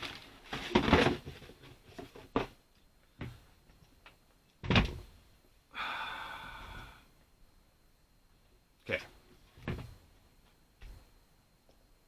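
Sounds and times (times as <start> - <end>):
shoebox knocks and thuds: 0.5 - 2.6, 4.6 - 5.0, 9.6 - 10.0.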